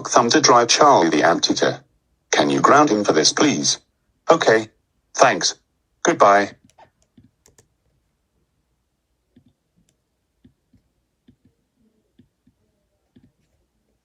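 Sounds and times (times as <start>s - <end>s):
computer clicking: 6.6s - 8.0s, 9.3s - 13.6s.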